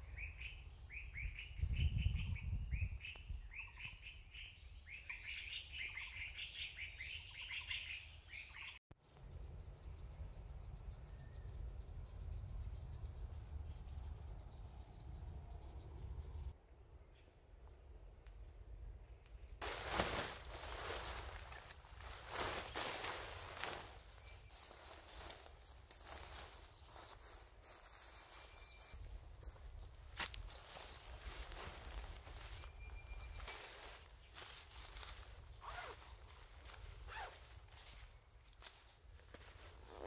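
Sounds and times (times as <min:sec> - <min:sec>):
insects buzzing: 0:09.0 - 0:40.0.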